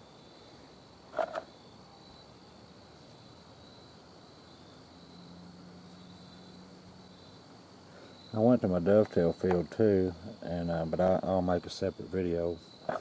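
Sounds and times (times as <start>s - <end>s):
crickets chirring: 0.0s - 13.0s
low steady hum: 0.0s - 13.0s.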